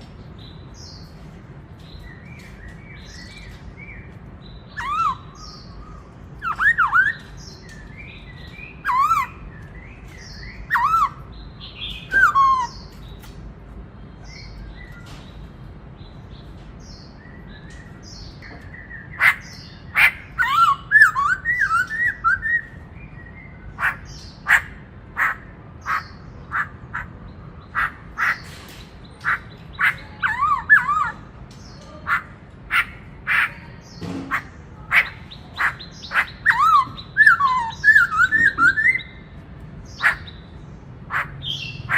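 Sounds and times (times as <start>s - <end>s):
bird whistled song: 2.0s - 13.2s, 17.1s - 26.7s, 29.2s - 31.3s, 35.0s - 39.4s.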